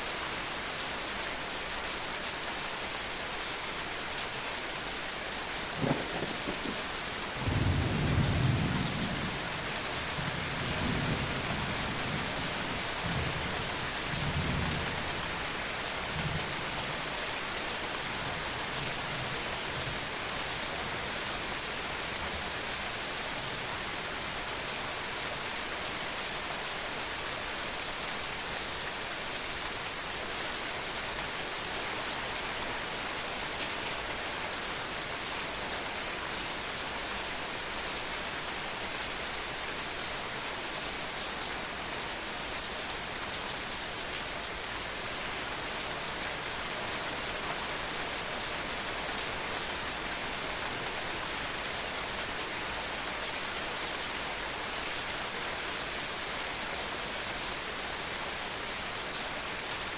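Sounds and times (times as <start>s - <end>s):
rain hiss: 0.0s - 59.9s
rolling thunder: 5.8s - 9.3s.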